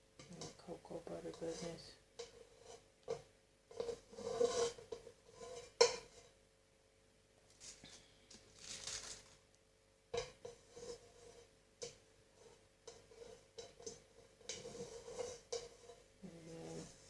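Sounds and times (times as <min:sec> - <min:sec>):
utensil clinking against a pan: 0:00.2 - 0:06.3, 0:10.2 - 0:16.9
utensil scraping a pan: 0:00.2 - 0:06.4, 0:10.2 - 0:17.0.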